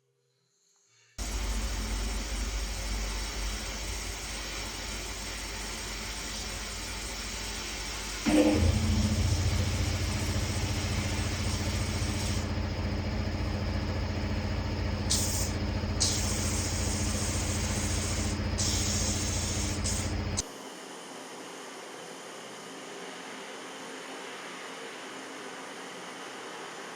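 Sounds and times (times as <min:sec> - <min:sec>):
loud machine hiss: 0:01.2 - 0:20.8
electric machine mains hum: 0:01.2 - 0:26.9.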